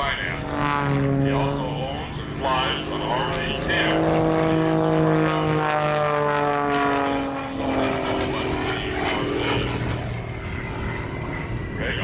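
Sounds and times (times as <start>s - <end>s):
propeller plane engine running: 0.0s - 12.0s.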